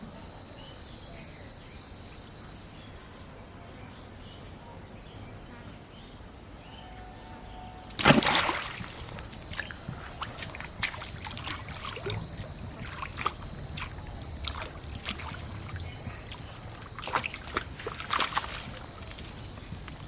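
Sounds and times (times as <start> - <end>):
pond water sloshing: 7.9 - 20.0
small water splashes: 7.9 - 20.0.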